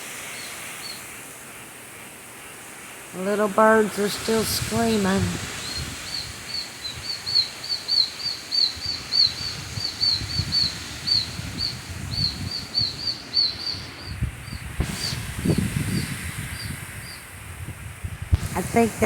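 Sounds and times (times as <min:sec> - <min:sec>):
gusting wind: 0:00.0 - 0:19.0
rain rumble: 0:02.8 - 0:19.0
baby birds chirping shrilly: 0:05.6 - 0:15.2.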